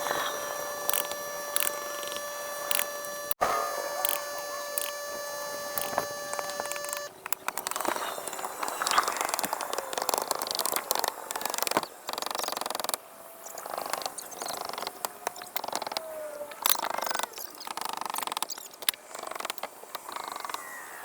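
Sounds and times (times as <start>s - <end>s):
short rattling bursts: 0.0s - 7.8s.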